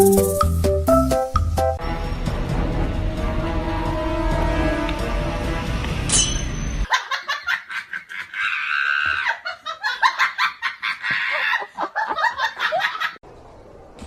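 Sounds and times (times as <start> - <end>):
music: 0.0 - 6.2.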